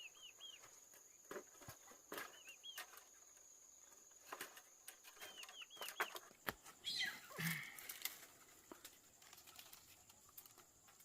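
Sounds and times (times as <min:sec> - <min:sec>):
small bird chirping: 0:00.0 - 0:07.6.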